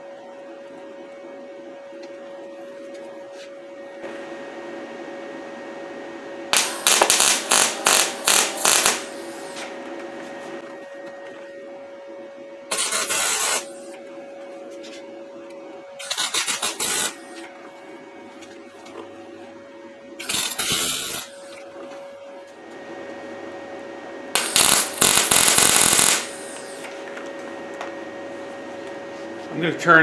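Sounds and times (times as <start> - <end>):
welding machine humming: 6.5 - 11.5, 12.7 - 30.0
arc welding tacks: 6.6 - 9.7, 12.7 - 13.8, 16.0 - 17.5, 20.2 - 21.6, 24.4 - 26.9.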